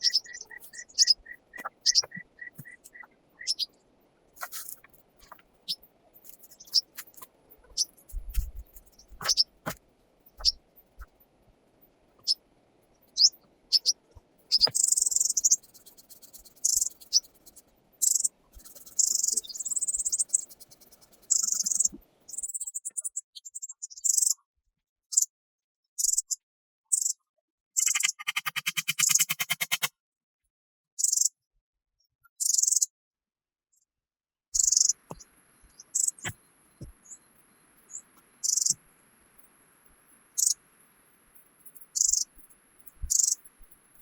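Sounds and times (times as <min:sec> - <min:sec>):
high-pitched chirping trills: 0:00.0 - 0:03.7, 0:04.4 - 0:07.0, 0:08.9 - 0:09.5, 0:13.2 - 0:20.7, 0:21.3 - 0:21.9, 0:34.6 - 0:38.8, 0:40.3 - 0:40.6, 0:41.4 - 0:44.0.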